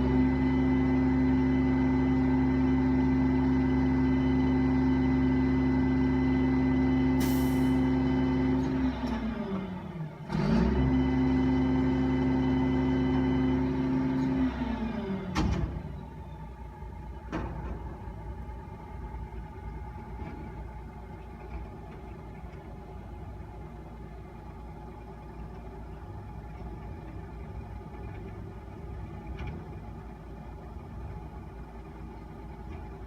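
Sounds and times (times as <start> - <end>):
garbage truck engine running: 0.0 - 33.0
air release hiss: 7.2 - 7.8.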